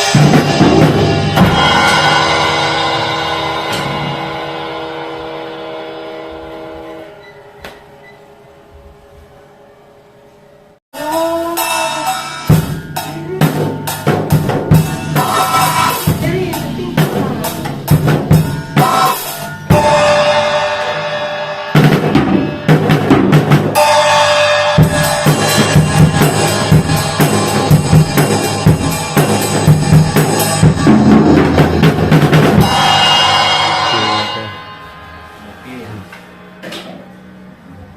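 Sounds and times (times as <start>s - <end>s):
bass drum and snare beat: 0.0s - 4.7s, 12.5s - 20.6s, 21.8s - 24.0s, 24.8s - 34.2s
cymbal crashes: 0.0s - 7.2s, 11.0s - 37.6s.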